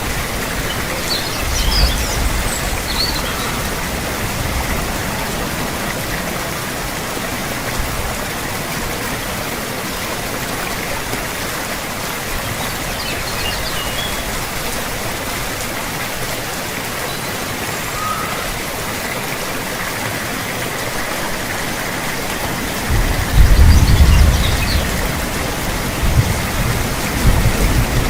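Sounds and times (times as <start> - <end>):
heavy rainfall hiss: 0.0 - 28.0
deep thunder rumble: 22.6 - 28.0.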